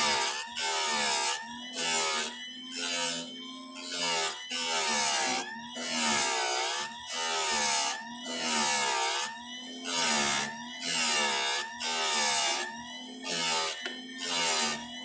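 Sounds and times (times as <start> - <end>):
file rasping on chainsaw tooth: 12.0 - 14.9.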